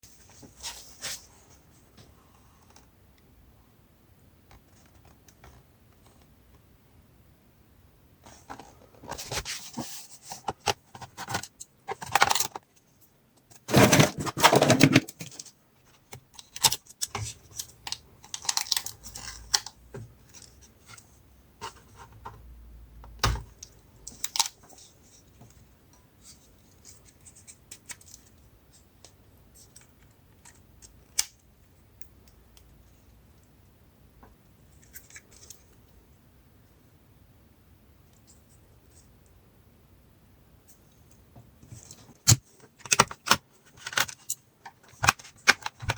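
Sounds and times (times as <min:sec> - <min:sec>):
scraping on plastic: 0:13.6 - 0:15.4.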